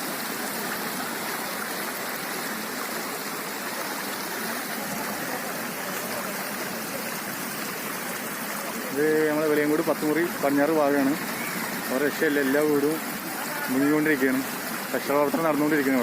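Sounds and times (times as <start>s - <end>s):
water rushing: 0.0s - 16.0s.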